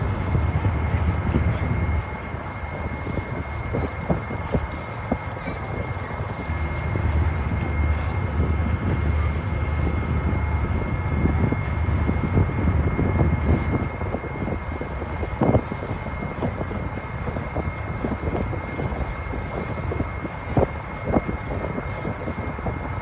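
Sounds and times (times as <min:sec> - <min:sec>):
steady high whine: 0:00.0 - 0:14.8
ferry engine drone: 0:00.0 - 0:23.0
wind buffeting microphone: 0:00.0 - 0:23.0.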